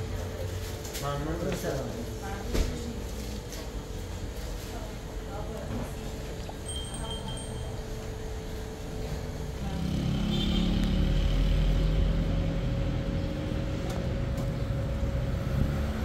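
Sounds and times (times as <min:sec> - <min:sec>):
vehicle engine rumbling: 0:07.4 - 0:16.0.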